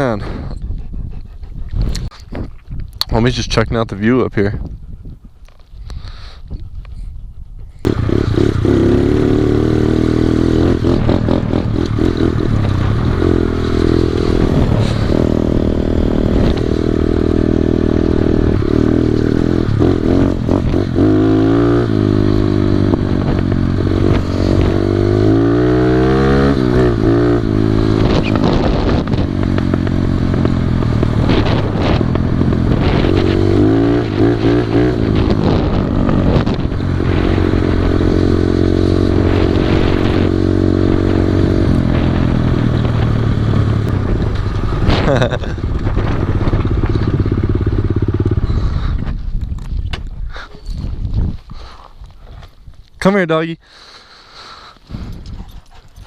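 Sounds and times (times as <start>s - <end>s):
small motorbike engine revving: 7.8s - 49.0s.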